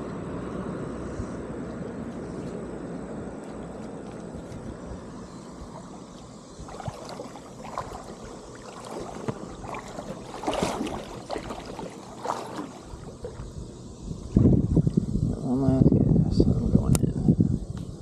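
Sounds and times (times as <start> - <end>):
creek water splashing: 2.3 - 15.2
rush of wind or current: 4.8 - 18.0.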